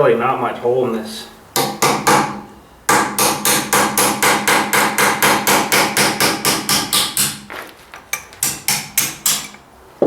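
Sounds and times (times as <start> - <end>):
hammer striking steel: 1.6 - 7.5, 8.1 - 9.6.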